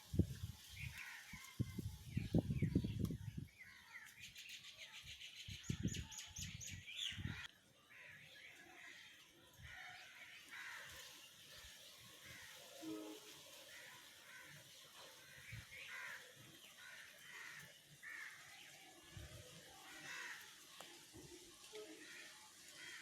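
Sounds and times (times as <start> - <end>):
small birds chirping: 0.2 - 12.6.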